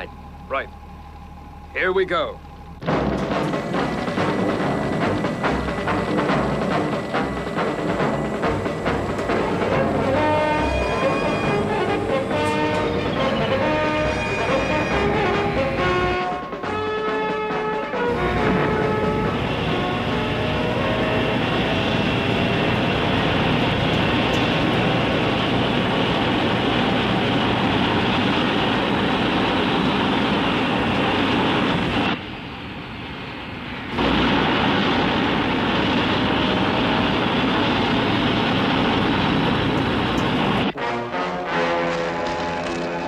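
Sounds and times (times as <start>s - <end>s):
drilling machine roaring: 0.0s - 16.2s, 18.1s - 32.2s.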